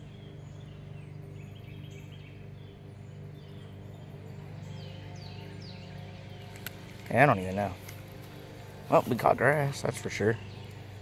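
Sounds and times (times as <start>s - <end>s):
birds chirping: 0.0s - 11.0s
steady low hum: 0.0s - 11.0s.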